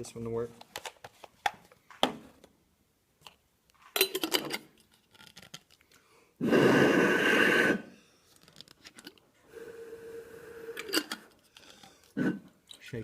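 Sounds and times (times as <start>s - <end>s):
glass jars clinking: 4.0s - 4.6s, 10.8s - 11.3s.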